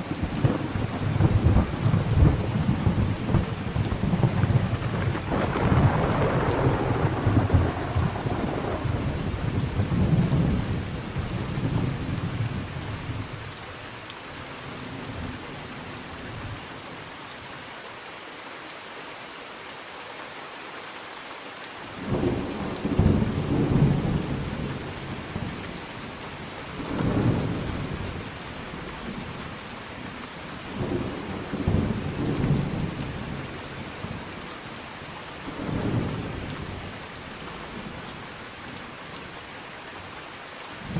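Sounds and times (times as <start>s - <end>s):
steady rain: 0.0s - 40.9s
rolling thunder: 0.2s - 12.7s.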